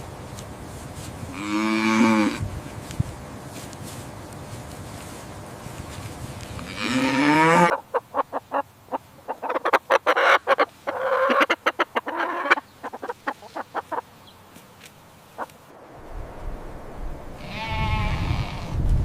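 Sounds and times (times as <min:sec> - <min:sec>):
cow mooing: 0:01.3 - 0:02.4, 0:06.7 - 0:07.8
chicken clucking and cackling: 0:07.2 - 0:14.1.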